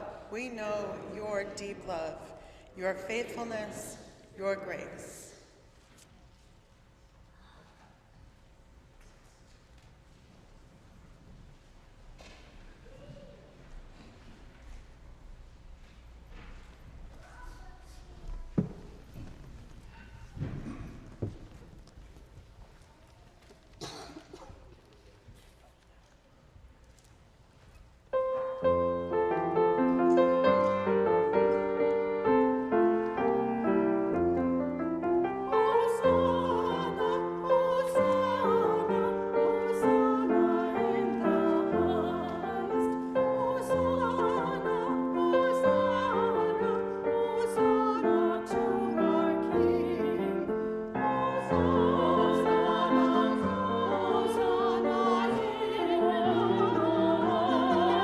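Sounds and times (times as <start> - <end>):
person singing with vibrato: 35.3 - 58.0.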